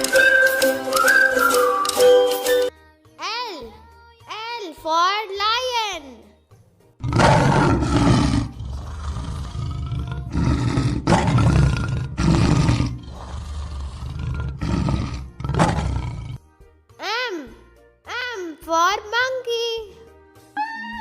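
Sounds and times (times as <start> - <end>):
lion roaring: 7.0 - 16.4.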